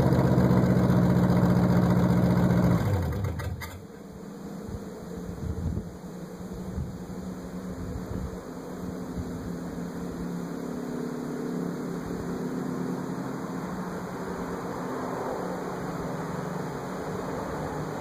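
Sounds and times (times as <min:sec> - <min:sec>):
car engine idling drone: 0:00.0 - 0:04.1, 0:08.4 - 0:18.0.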